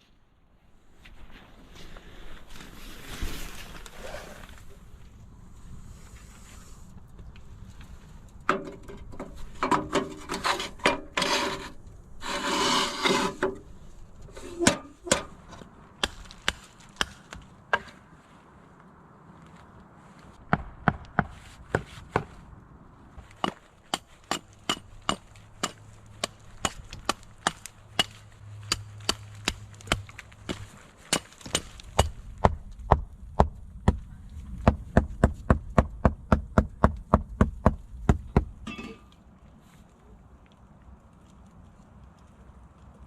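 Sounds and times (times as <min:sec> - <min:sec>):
axe chopping wood: 0:16.0 - 0:18.0, 0:20.4 - 0:22.3, 0:23.4 - 0:34.0.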